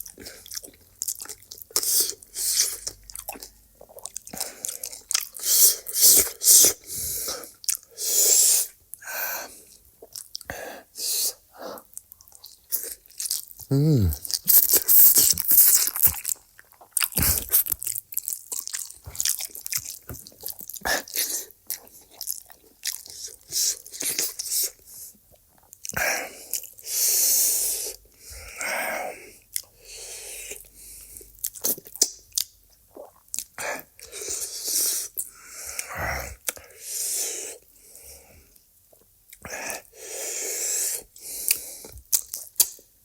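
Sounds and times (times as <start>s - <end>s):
person chewing crunchy food: 0.0s - 8.7s, 9.5s - 10.5s, 11.3s - 28.7s, 29.4s - 37.8s, 38.9s - 42.9s
breathy slurps: 13.7s - 16.2s.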